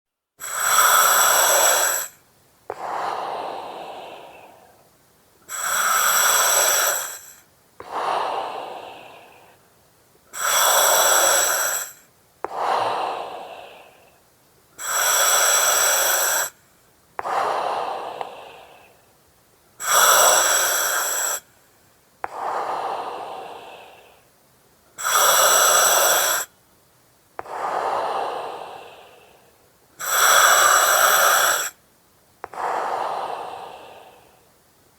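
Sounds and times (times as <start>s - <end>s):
breathing through oxygen mask: 0.4s - 4.8s, 5.5s - 9.6s, 10.3s - 14.2s, 14.8s - 16.6s, 17.2s - 19.0s, 19.8s - 21.6s, 22.2s - 24.3s, 25.0s - 26.5s, 27.4s - 31.8s, 32.5s - 34.5s.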